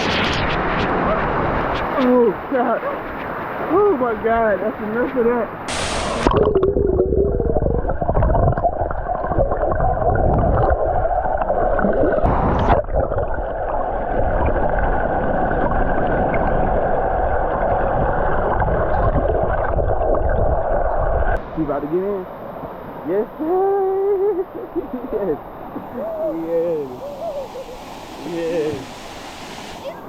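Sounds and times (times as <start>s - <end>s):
waterfall rushing: 5.7s - 6.4s, 25.3s - 30.0s.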